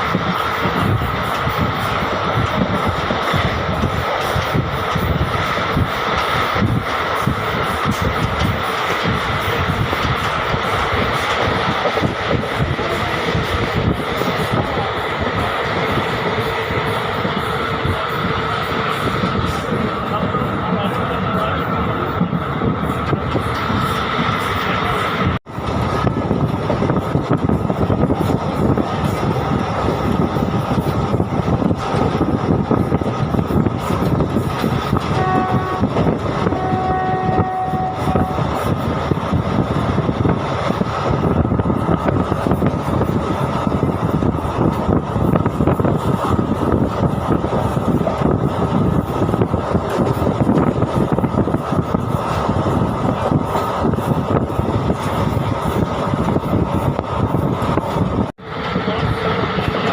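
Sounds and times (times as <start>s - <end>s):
train wheels rumbling on track: 0.0s - 59.9s
train horn blast: 35.1s - 38.5s.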